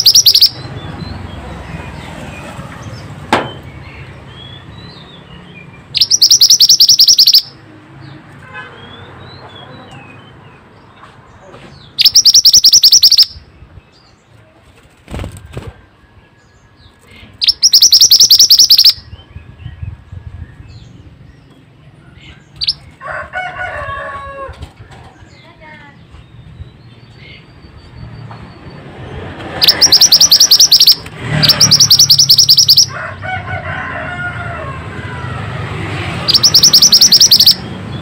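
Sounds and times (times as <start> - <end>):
faint bird chirps: 0.0 - 0.6, 6.0 - 7.5, 12.0 - 13.4, 17.1 - 19.1, 29.6 - 32.9, 36.3 - 37.6
high-pitched bird trills: 0.0 - 0.7, 5.9 - 7.6, 12.0 - 13.5, 17.4 - 19.2, 22.5 - 22.8, 29.6 - 33.0, 36.2 - 37.8.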